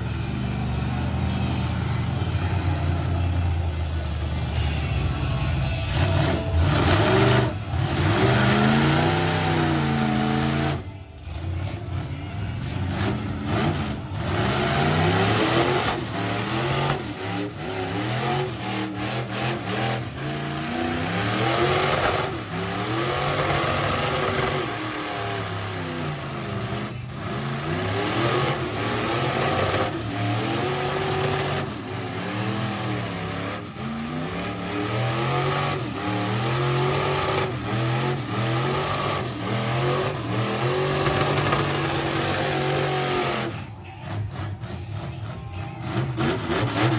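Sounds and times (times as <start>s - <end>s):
truck engine revving hard: 0.0s - 46.9s.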